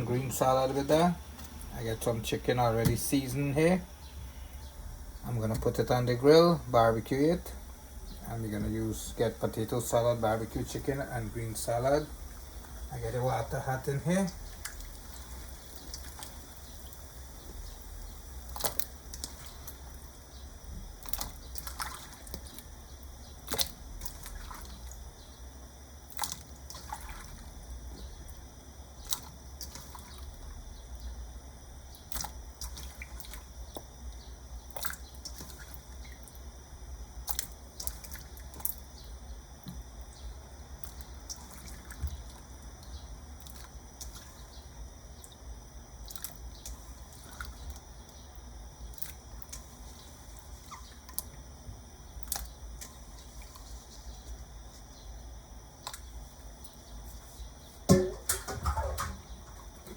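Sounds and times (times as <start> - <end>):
low steady hum: 0.0 - 59.9
water drips and splashes: 11.8 - 17.6, 18.3 - 20.1, 20.9 - 22.7, 23.4 - 25.1, 26.1 - 27.6, 29.0 - 30.4, 32.0 - 33.9, 34.7 - 36.5, 37.2 - 38.9, 40.8 - 44.4, 46.0 - 48.2, 48.9 - 51.4, 52.2 - 53.6, 55.8 - 56.8, 57.8 - 59.9.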